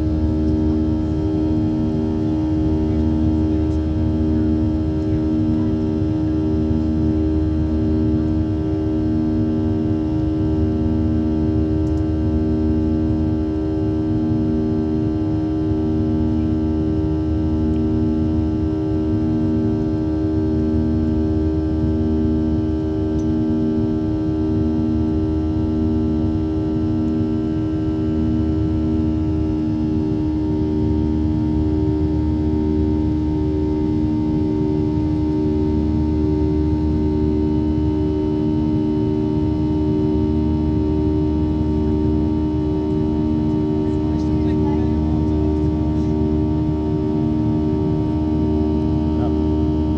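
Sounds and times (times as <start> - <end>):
jet engines droning: 0.0 - 49.9
airflow rumble: 40.7 - 49.9.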